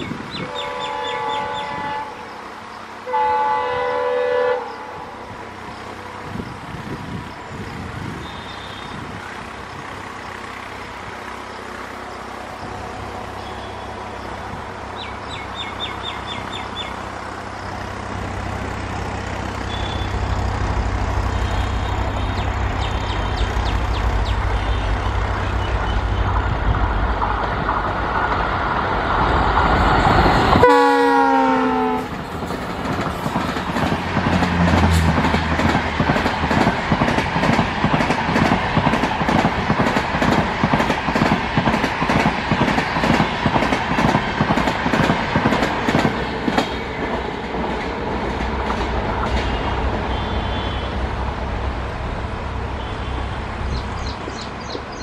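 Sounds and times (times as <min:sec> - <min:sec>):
diesel locomotive engine rumble: 0:00.0 - 0:55.0
train horn: 0:00.4 - 0:02.3, 0:03.0 - 0:05.3, 0:19.7 - 0:20.2, 0:30.6 - 0:32.2, 0:49.4 - 0:51.0
wheels clickety-clack on rail joints: 0:05.4 - 0:55.0.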